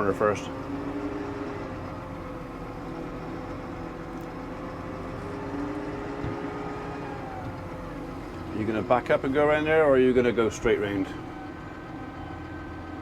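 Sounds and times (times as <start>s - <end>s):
tractor engine droning: 0.0s - 13.0s.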